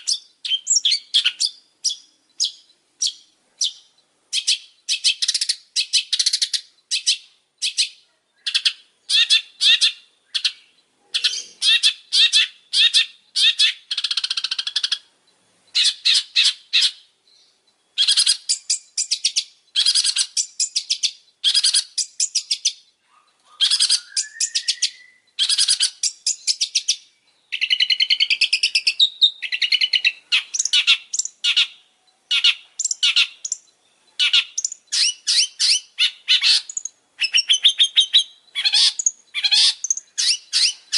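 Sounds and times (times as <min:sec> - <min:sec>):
bird harsh chattering song: 0:00.0 - 0:40.9
bird rising whistle: 0:23.6 - 0:25.3.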